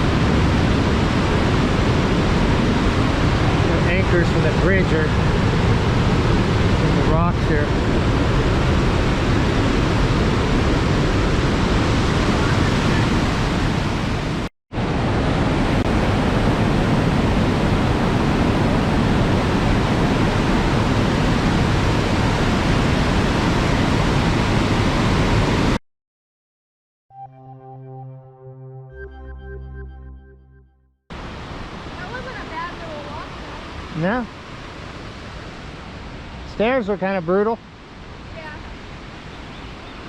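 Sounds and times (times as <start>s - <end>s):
waterfall rushing into rock canyon: 0.0s - 25.8s, 31.1s - 39.8s.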